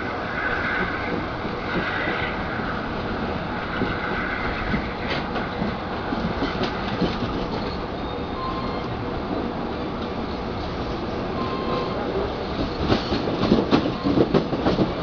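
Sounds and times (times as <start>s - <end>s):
train wheels rumbling and clattering: 0.0s - 15.0s
faint high wheel squeal: 7.5s - 8.9s, 11.3s - 12.2s.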